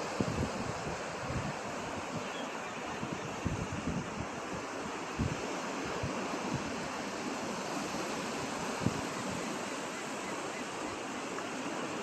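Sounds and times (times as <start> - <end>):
wind buffeting microphone: 0.0 - 9.6
ocean surf: 0.0 - 12.0.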